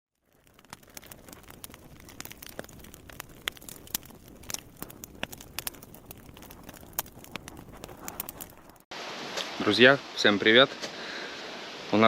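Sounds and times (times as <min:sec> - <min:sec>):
campfire crackling and popping: 0:00.1 - 0:09.6
low steady hiss: 0:09.0 - 0:12.0.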